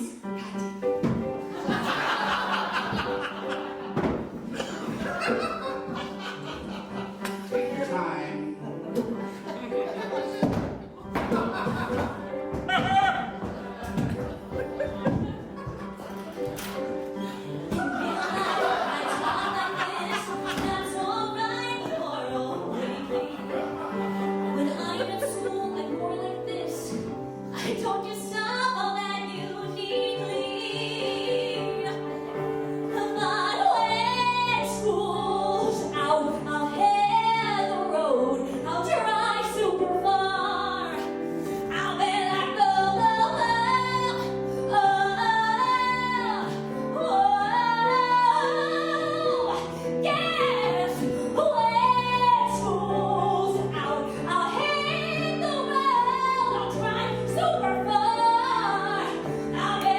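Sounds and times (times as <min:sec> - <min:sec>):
woman singing: 0:16.7 - 0:59.9.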